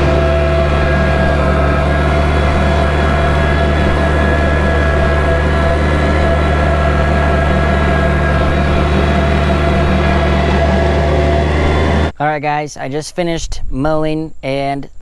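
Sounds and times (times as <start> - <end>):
tractor diesel engine running: 0.0 - 12.3.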